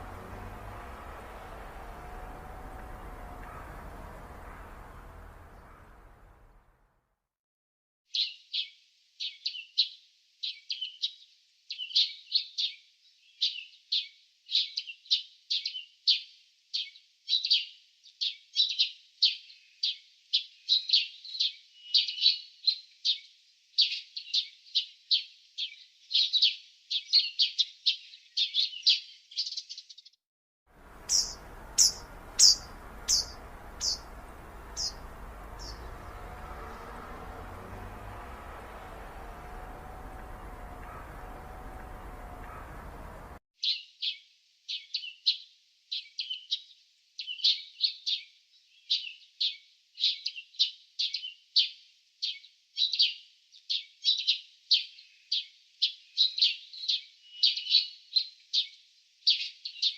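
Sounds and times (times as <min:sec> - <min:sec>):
bird chirping: 0:00.0 - 0:06.6, 0:30.8 - 0:44.2.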